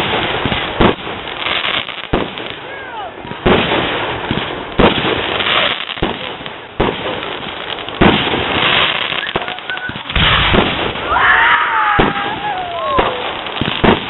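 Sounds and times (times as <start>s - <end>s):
fireworks bursting with sharp bangs: 0.0s - 14.0s
fireworks crackling: 0.0s - 14.0s
wavering firework whistle: 8.8s - 13.4s.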